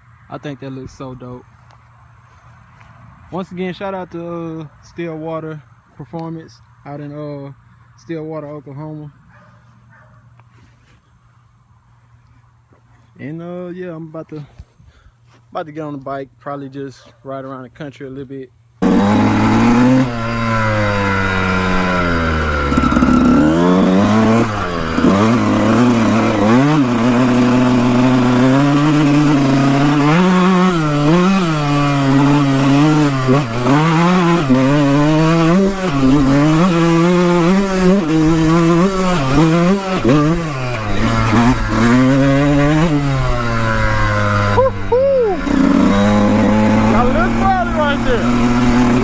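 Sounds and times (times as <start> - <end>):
dirt bike engine revving: 18.8 - 49.0.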